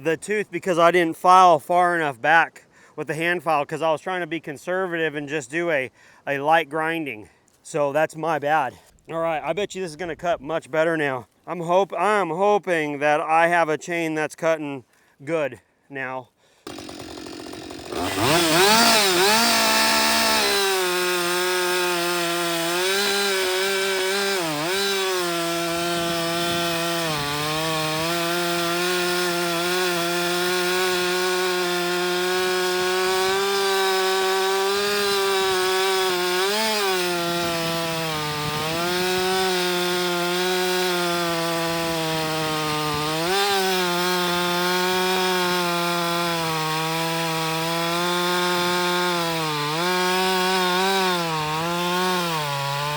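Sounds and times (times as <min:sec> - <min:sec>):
chainsaw cutting log: 0:16.6 - 0:52.9.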